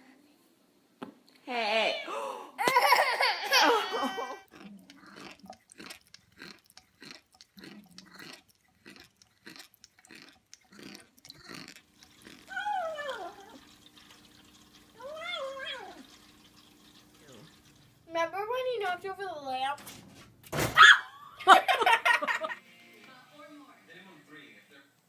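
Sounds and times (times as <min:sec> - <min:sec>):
faint steady hum: 0:00.0 - 0:25.0
soft chewing clicks and crunches: 0:04.4 - 0:12.5.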